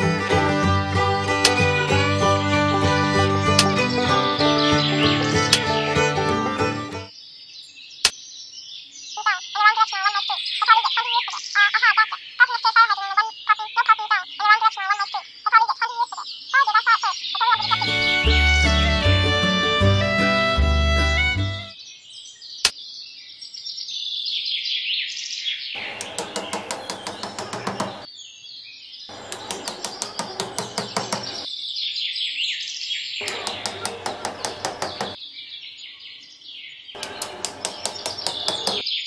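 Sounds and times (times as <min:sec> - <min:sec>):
small birds chirping: 0:03.6 - 0:05.9, 0:07.1 - 0:18.0, 0:21.7 - 0:39.0.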